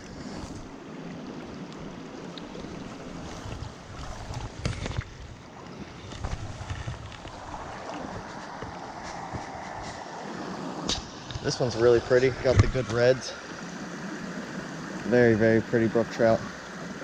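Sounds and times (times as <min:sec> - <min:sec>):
small mountain stream rushing: 0:00.0 - 0:17.0
wind buffeting microphone: 0:02.6 - 0:15.1.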